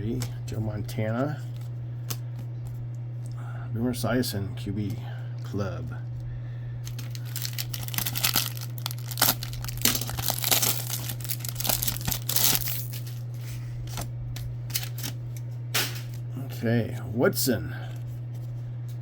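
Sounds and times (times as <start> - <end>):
steady low hum: 0.0 - 19.0
wrapper tearing and crinkling: 6.8 - 14.1, 14.7 - 15.2.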